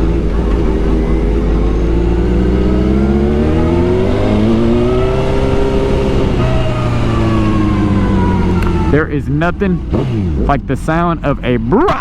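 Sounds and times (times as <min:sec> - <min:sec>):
motorcycle engine under throttle: 0:00.0 - 0:09.0.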